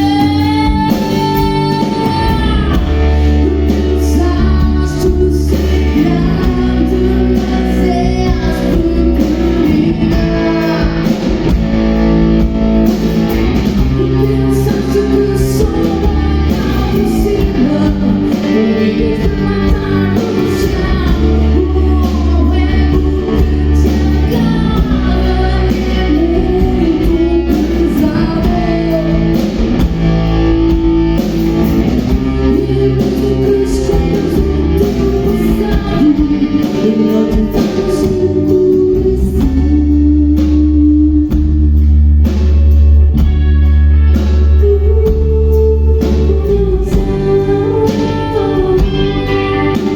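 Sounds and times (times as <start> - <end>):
person singing: 0.0 - 11.6, 12.9 - 30.0, 31.2 - 41.9, 44.1 - 49.9
rock band playing live: 0.0 - 49.9.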